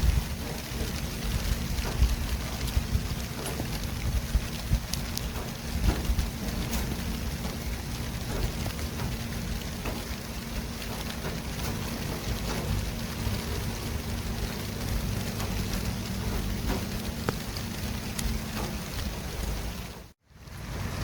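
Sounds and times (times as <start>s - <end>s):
low engine hum: 0.0s - 21.0s
traffic hiss: 0.0s - 21.0s
vehicles rumbling: 0.0s - 21.0s.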